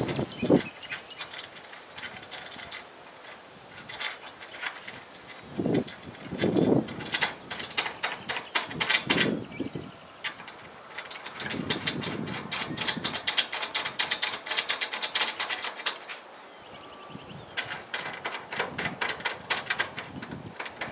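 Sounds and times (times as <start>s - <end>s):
hand tool clicking: 0.0s - 9.4s, 10.2s - 16.2s, 17.6s - 20.9s.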